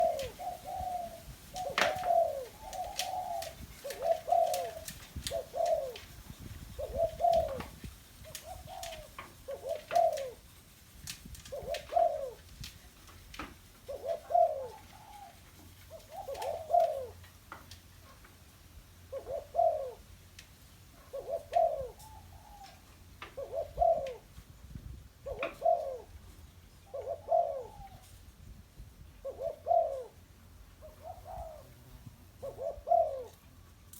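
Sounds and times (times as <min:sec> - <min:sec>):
dove cooing: 0:00.0 - 0:10.5, 0:11.5 - 0:12.8, 0:13.8 - 0:17.2, 0:19.1 - 0:20.1, 0:21.0 - 0:24.4, 0:25.2 - 0:26.2, 0:26.8 - 0:28.2, 0:29.2 - 0:30.2, 0:30.8 - 0:33.5.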